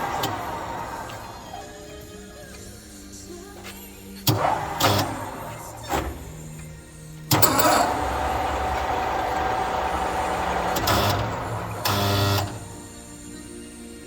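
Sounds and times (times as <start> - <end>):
lathe running with a whine: 0.0 - 2.0, 4.3 - 6.6, 7.3 - 13.1
lathe clattering: 0.0 - 2.2, 3.6 - 12.9.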